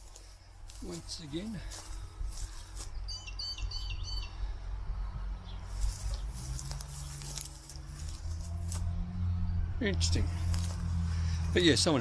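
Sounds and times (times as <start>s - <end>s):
low outdoor rumble: 0.0s - 12.0s
small bird chirping: 2.5s - 4.4s.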